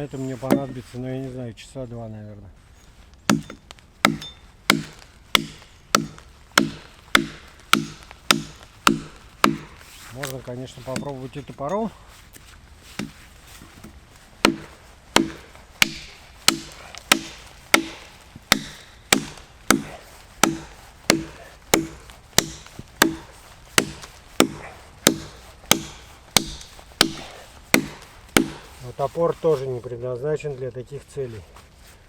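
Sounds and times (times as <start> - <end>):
hatchet chopping log: 3.3 - 11.2, 12.9 - 28.9.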